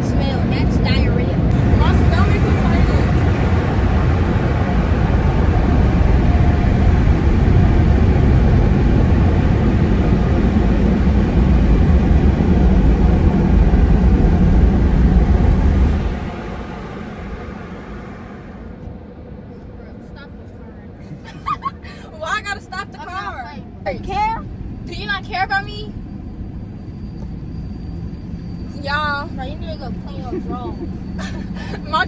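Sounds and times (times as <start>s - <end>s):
car interior wind rushing: 0.0s - 19.8s.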